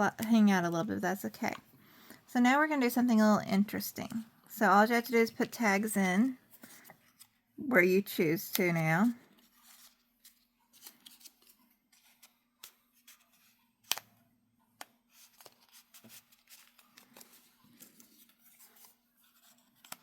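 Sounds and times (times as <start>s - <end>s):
card stock rustling: 8.4s - 14.1s, 14.8s - 20.0s.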